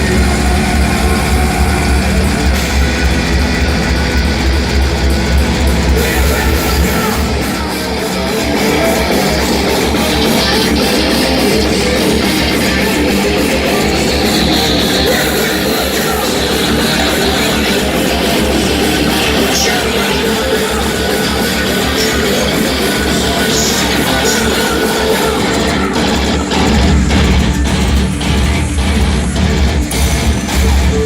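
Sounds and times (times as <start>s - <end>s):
fast even drumming: 0.0s - 31.0s
metal band playing live: 0.0s - 31.0s.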